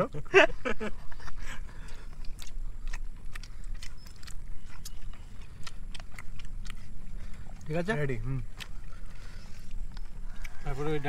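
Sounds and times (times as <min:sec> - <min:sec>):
person chewing food: 0:00.7 - 0:11.0
mouth clicks and smacks: 0:01.0 - 0:07.7.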